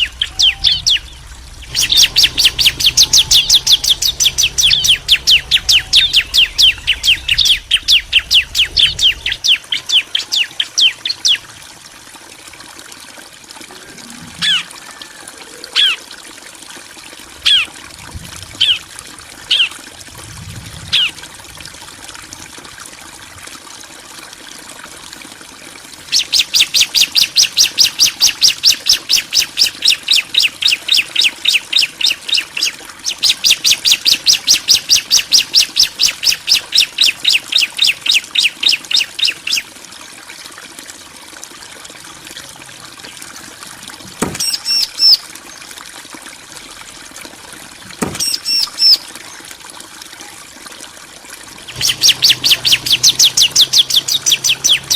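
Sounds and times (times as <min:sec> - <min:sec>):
bird calling repeated sharp notes: 0:00.0 - 0:11.4, 0:44.2 - 0:45.2, 0:48.0 - 0:49.1, 0:51.7 - 0:54.9
high bird chirping bursts: 0:00.0 - 0:11.4, 0:44.3 - 0:45.2, 0:48.1 - 0:49.0, 0:51.7 - 0:54.9.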